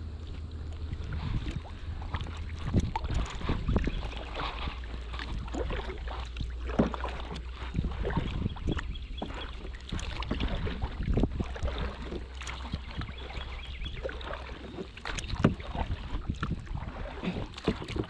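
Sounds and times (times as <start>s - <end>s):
wind rumble on microphone: 0.0s - 18.0s
paddle splashing in water: 0.2s - 18.0s
paddle knocks: 2.2s - 13.1s, 14.7s - 18.0s.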